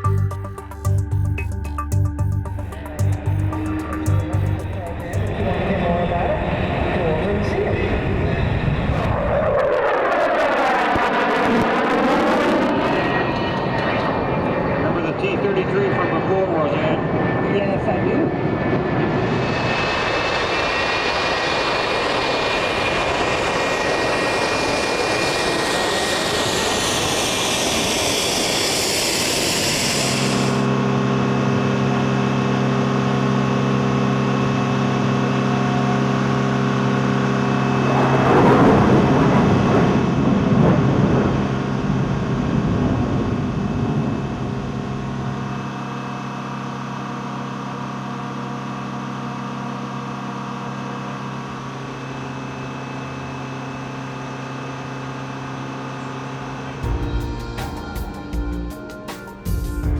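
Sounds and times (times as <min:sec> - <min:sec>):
low engine hum: 0:00.0 - 0:09.2
jet engine whine: 0:00.0 - 0:59.9
rush of engine noise: 0:02.5 - 0:57.5.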